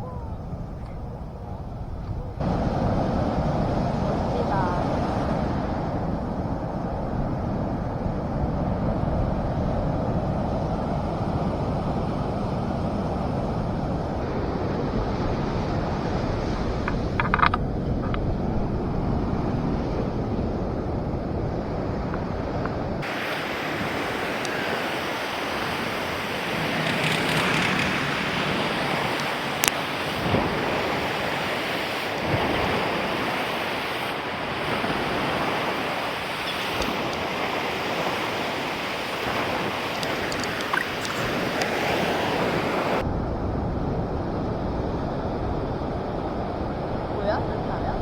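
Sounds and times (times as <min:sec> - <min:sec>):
sea surf washing: 0:00.0 - 0:48.0
wind buffeting microphone: 0:00.0 - 0:48.0.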